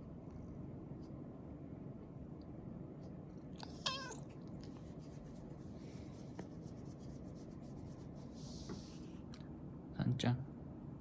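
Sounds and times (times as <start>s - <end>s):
cat wavering call: 3.7s - 4.3s.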